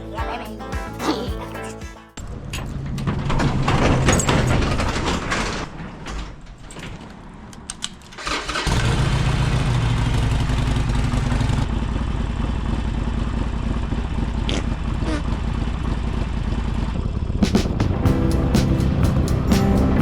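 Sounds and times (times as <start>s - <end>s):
vehicle engine running: 8.6s - 20.0s.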